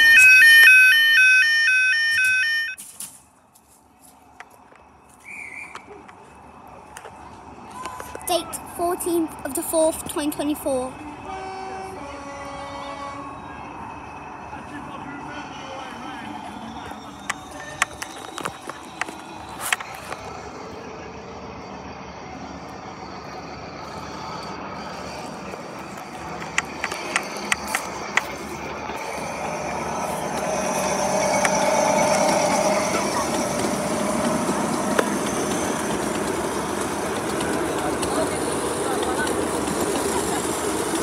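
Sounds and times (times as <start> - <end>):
miniature train running: 5.3 - 13.1, 14.5 - 41.0.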